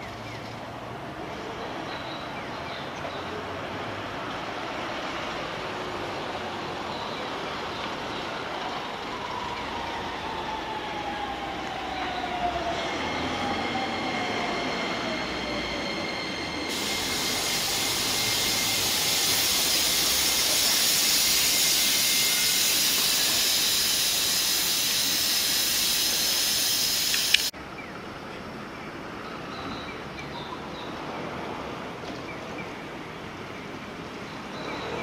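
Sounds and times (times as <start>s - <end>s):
train wheel and rail noise: 0.0s - 27.6s, 29.4s - 35.0s
high hiss and whistling tones: 9.2s - 27.5s
electric train motor whine: 10.1s - 27.5s.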